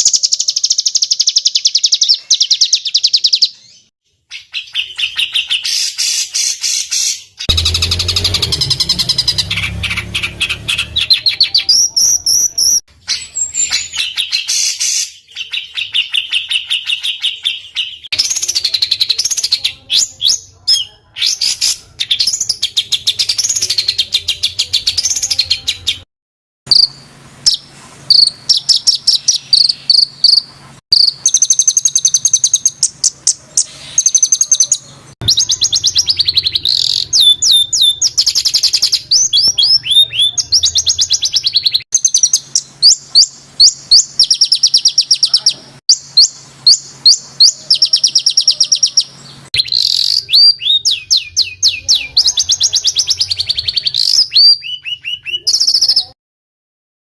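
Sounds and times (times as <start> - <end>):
songbird trills: 26.7 - 56.2.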